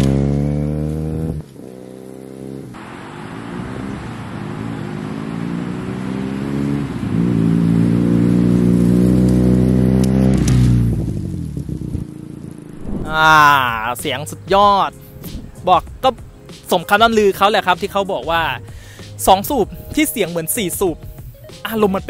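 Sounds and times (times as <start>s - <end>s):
motorcycle engine passing by: 0.0s - 2.8s, 5.0s - 13.8s.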